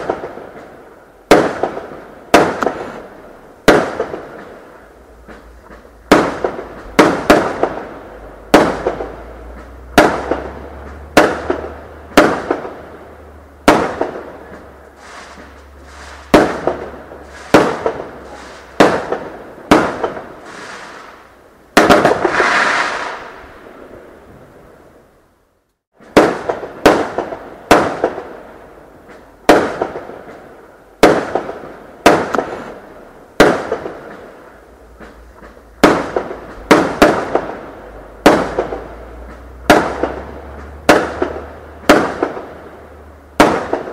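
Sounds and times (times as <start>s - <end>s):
fireworks hissing crackle: 0.0s - 24.3s
fireworks bangs: 0.0s - 24.8s, 26.0s - 43.9s.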